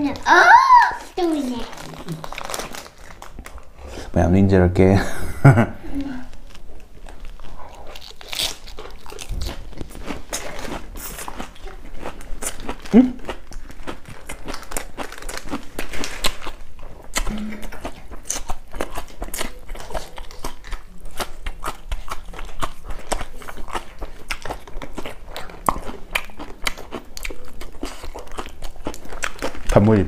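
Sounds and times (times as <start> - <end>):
man chewing crunchy salad: 6.3 - 30.0.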